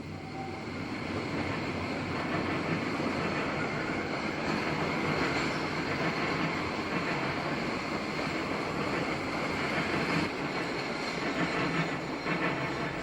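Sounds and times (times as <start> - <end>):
freight train rolling past: 0.0 - 13.0.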